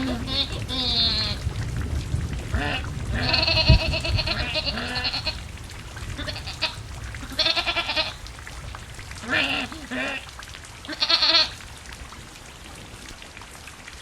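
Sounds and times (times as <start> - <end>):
goats bleating: 0.0 - 1.4, 2.6 - 5.4, 6.2 - 8.2, 9.2 - 10.3, 10.9 - 11.6
low rumbling noise: 0.0 - 11.4.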